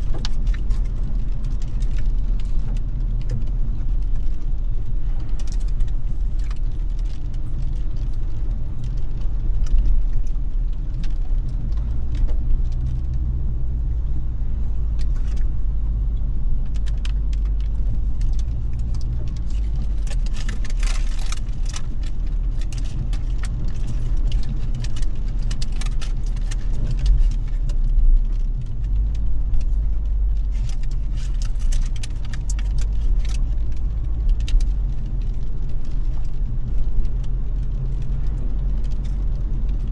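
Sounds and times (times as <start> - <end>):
car road and engine rumble: 0.0 - 39.9
rain pattering on car: 0.0 - 39.9.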